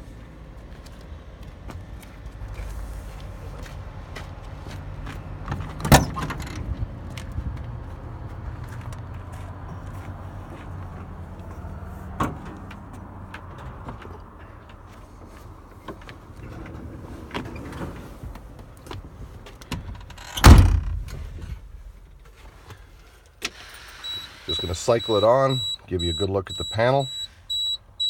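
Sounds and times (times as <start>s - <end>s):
truck door slamming: 5.8s - 6.7s, 19.7s - 22.2s.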